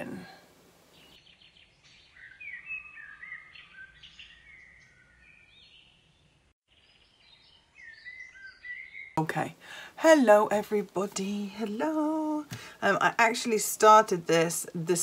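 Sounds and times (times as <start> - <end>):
faint birdsong: 0.0 - 10.0.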